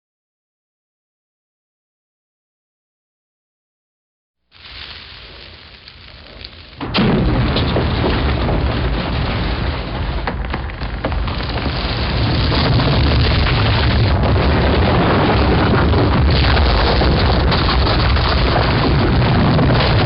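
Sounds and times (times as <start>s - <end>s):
debris crackling and clattering: 4.6s - 20.0s
heavy low rumble: 4.6s - 20.0s.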